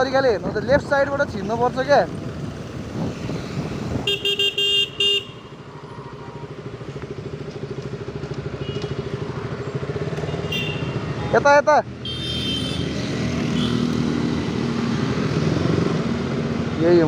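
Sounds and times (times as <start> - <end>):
motorcycle engine running: 0.5 - 16.9
vehicle horn honking: 4.0 - 5.5, 10.3 - 11.3, 12.0 - 12.9.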